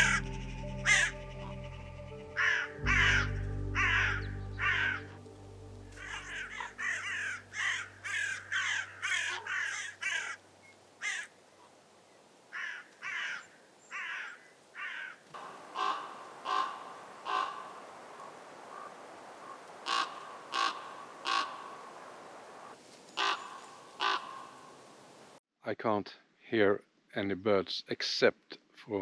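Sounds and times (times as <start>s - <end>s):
ravens croaking: 0.0s - 5.2s, 5.9s - 10.4s, 12.5s - 22.1s, 23.2s - 24.6s.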